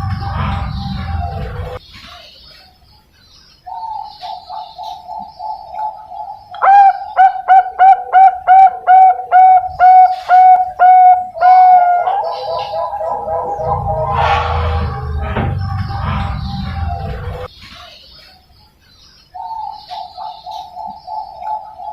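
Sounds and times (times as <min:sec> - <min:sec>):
dove cooing: 0:03.7 - 0:15.0, 0:19.4 - 0:21.9.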